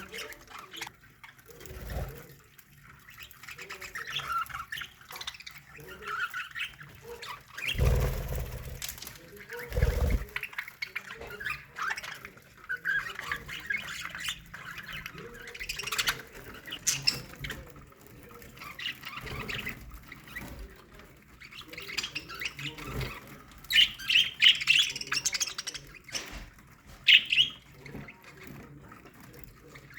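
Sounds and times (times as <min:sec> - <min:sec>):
budgerigars chattering: 0:21.5 - 0:28.2.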